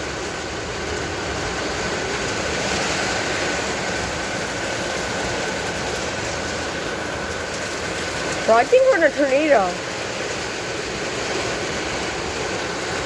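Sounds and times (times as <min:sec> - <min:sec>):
heavy rain: 0:00.0 - 0:13.0
strong storm wind: 0:00.0 - 0:13.0.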